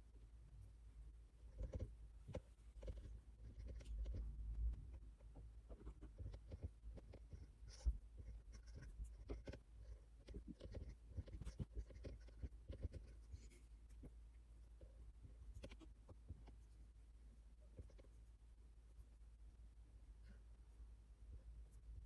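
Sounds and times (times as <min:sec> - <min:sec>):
pen scratching on paper: 0:05.7 - 0:14.0.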